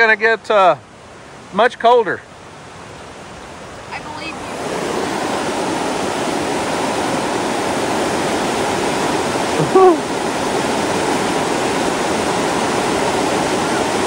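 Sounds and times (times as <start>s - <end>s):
creek water rushing over rocks: 0.0s - 14.0s
brief voice-like sound: 9.6s - 10.0s.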